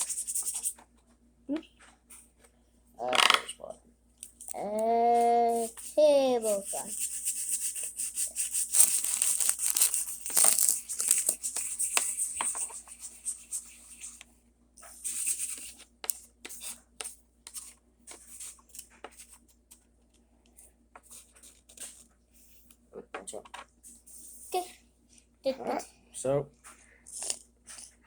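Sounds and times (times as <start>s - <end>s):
hands rustling and rubbing: 5.6s - 12.8s.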